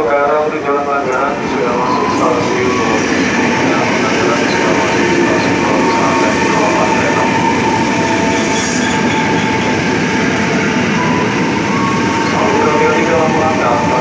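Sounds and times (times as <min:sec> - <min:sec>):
electric train passing: 0:00.0 - 0:14.0.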